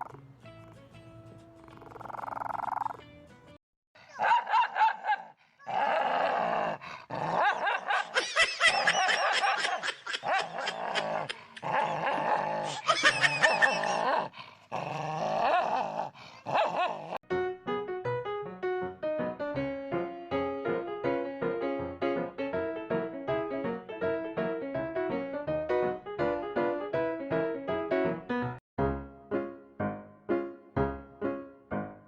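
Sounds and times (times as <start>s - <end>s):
dog barking and yipping: 4.0s - 5.8s, 7.3s - 14.3s, 16.3s - 17.2s.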